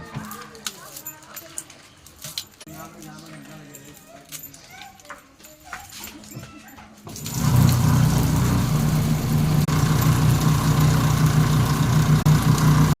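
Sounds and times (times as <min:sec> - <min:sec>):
machine motor humming: 0:07.2 - 0:13.0.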